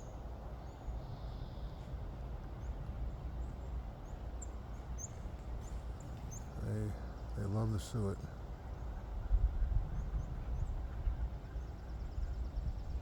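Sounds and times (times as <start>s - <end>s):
wind rumble on microphone: 8.4s - 13.0s.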